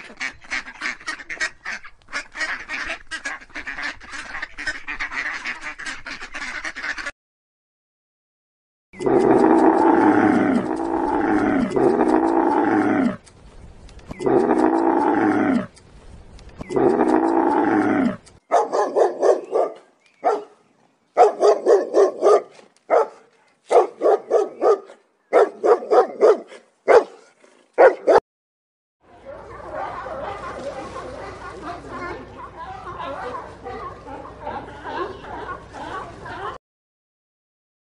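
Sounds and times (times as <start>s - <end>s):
long falling animal calls: 9.0s - 13.2s, 14.1s - 15.7s, 16.6s - 18.2s
puppy barking: 18.5s - 20.6s, 21.2s - 27.2s, 27.8s - 28.2s, 29.3s - 31.7s.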